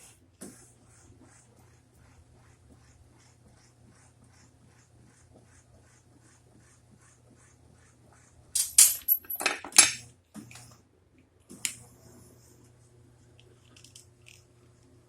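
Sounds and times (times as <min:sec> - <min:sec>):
metal clanking and rattling: 0:08.6 - 0:10.0.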